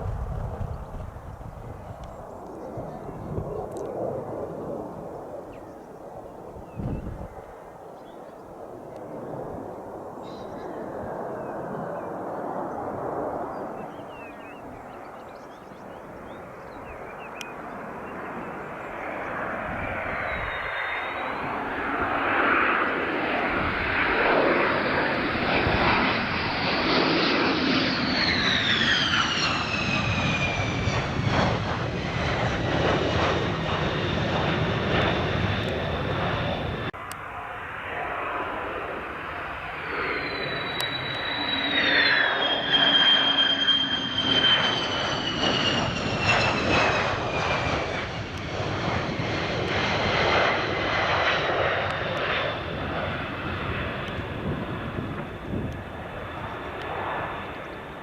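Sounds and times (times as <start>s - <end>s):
fighter jet passing close: 10.8s - 15.2s, 16.0s - 58.0s.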